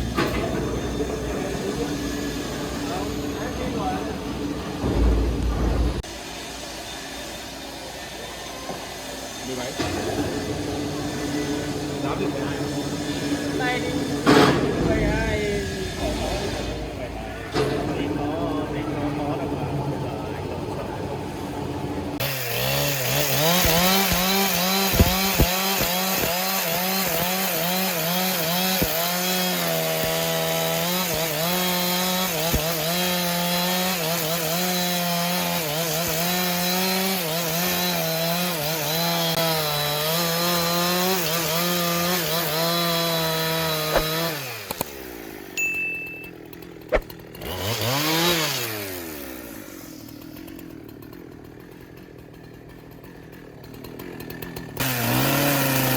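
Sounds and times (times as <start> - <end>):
chainsaw cutting wood: 0.0 - 6.9, 8.7 - 16.9, 22.1 - 55.9
chainsaw throttle blip: 22.8 - 27.4, 42.4 - 48.7.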